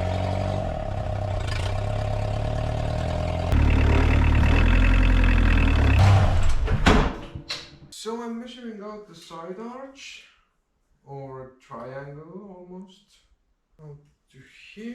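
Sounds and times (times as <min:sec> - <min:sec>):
vehicle engine running: 0:00.0 - 0:06.7.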